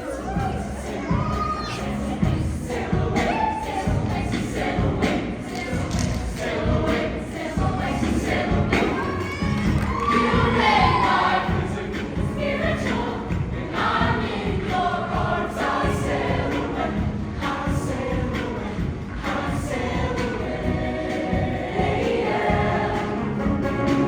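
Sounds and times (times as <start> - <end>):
choir singing: 0.0 - 24.0
live band playing: 23.0 - 24.0.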